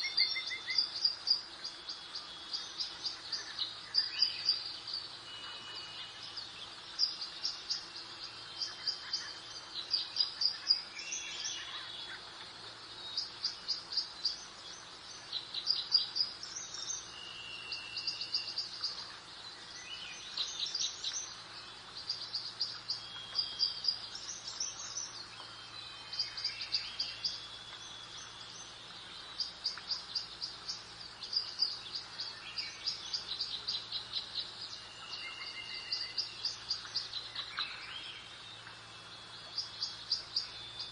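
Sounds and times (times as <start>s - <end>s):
birds chirping trills: 0.0s - 40.9s
faint steady hum: 0.0s - 40.9s.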